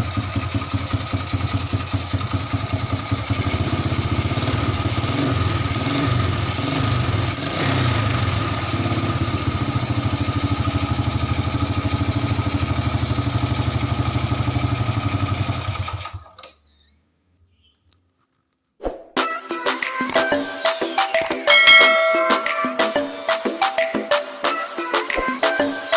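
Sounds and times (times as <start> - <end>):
motorcycle engine revving and idling: 0.0 - 16.4.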